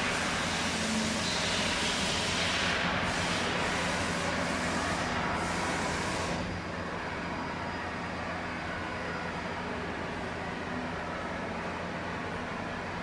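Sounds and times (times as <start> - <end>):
hiss: 0.0 - 6.4.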